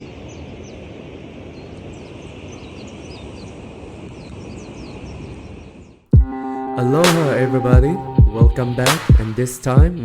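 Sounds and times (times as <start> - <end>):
small birds chirping: 0.0 - 6.4.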